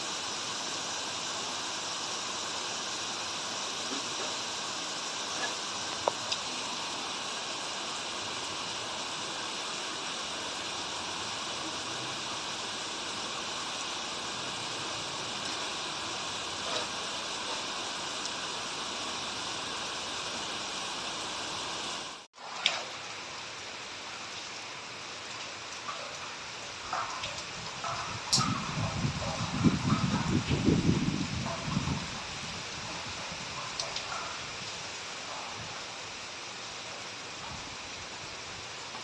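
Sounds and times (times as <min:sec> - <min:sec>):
running stream water: 0:00.0 - 0:39.0
steady rain: 0:00.0 - 0:39.0.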